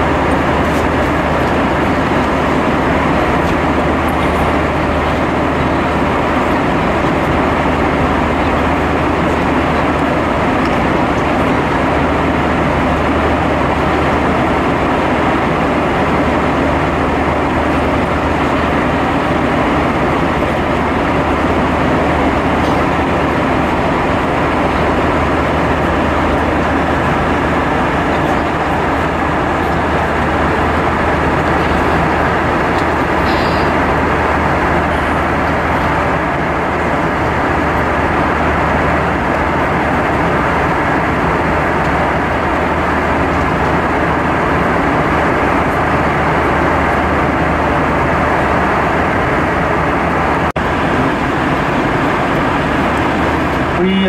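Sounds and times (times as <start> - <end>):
airplane cabin airflow and engine: 0.0 - 54.0
constant low hum: 0.0 - 54.0.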